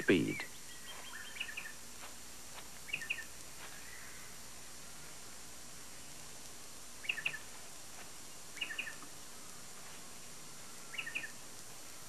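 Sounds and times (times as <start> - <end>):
bird calling: 0.0 - 1.8, 2.8 - 5.2, 7.0 - 7.6, 8.3 - 9.6, 10.5 - 11.4
tape hiss: 0.0 - 12.0.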